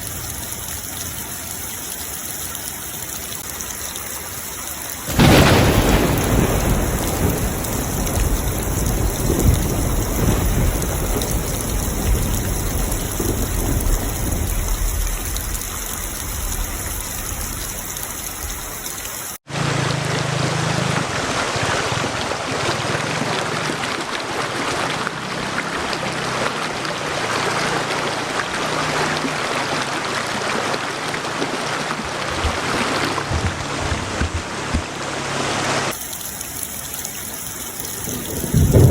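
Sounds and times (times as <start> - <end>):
heavy rain: 0.0 - 38.9
thunder rumbling: 5.1 - 18.8, 38.0 - 38.9.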